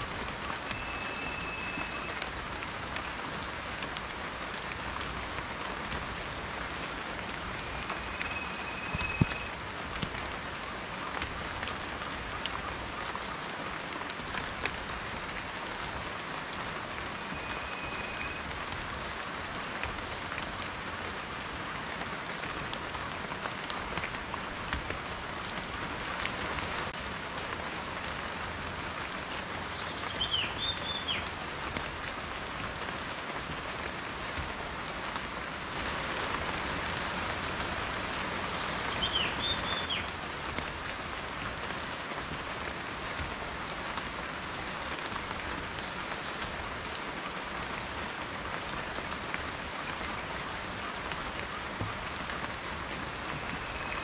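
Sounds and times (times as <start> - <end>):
rain falling: 0.0 - 54.0
high whistle-like tone: 0.7 - 2.2, 7.6 - 9.5, 17.2 - 18.4.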